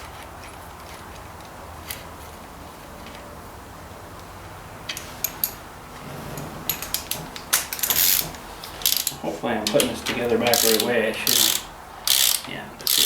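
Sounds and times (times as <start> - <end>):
small metallic clicks of bolts: 6.7 - 13.0.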